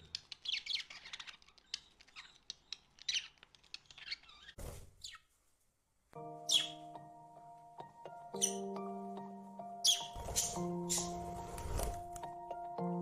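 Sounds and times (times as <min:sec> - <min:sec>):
music: 0:06.2 - 0:13.0
budgerigars chirping: 0:06.5 - 0:06.9, 0:08.4 - 0:08.7, 0:09.8 - 0:11.2.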